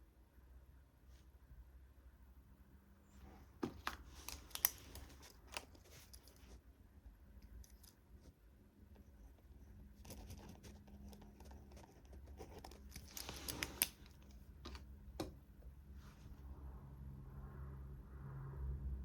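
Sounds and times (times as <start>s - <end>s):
paper rustling: 12.4s - 14.8s.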